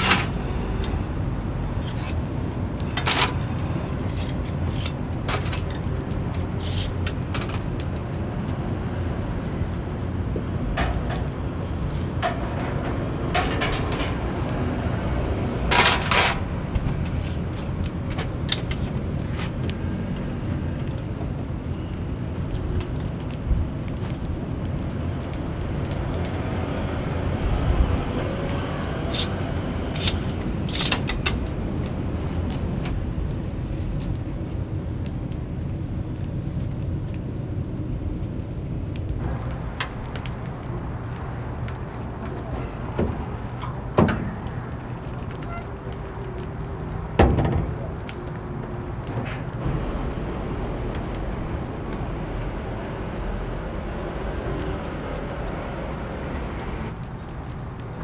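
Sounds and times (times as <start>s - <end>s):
clicks and light clatter: 0.0s - 8.7s, 9.4s - 34.3s, 38.2s - 58.0s
wood fire crackling: 0.0s - 58.0s
loud rustling: 10.1s - 21.2s.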